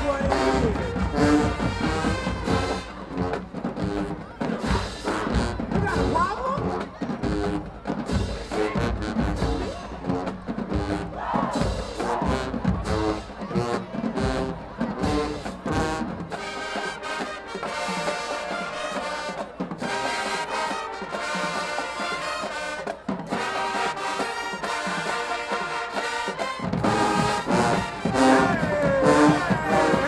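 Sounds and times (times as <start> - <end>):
marching band brass chords: 0.0 - 30.0.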